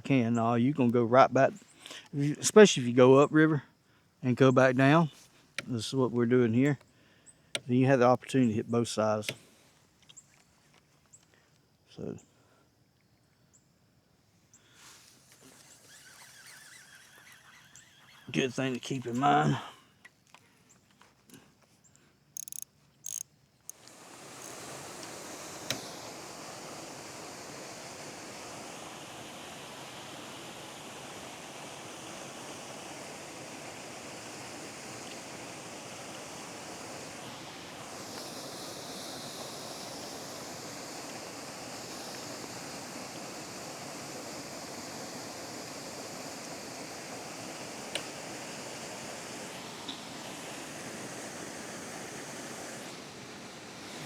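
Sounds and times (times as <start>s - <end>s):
faint ticks: 20.0s - 24.0s
sharp click: 22.4s - 23.3s.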